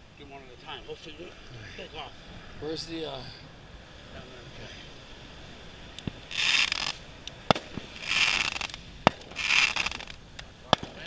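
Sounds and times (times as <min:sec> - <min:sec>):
firework whoosh and bang: 0:06.1 - 0:10.1.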